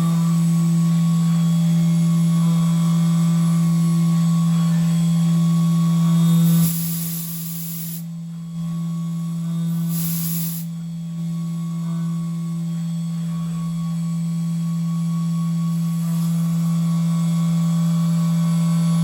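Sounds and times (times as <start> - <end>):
mill spindle humming: 0.0 - 19.0
short bursts of hissing: 6.5 - 8.0, 9.8 - 10.7.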